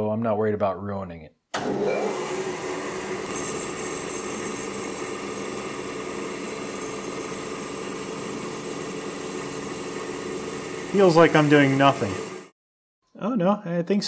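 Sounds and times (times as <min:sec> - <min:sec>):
surface grinder running: 0:01.8 - 0:12.5.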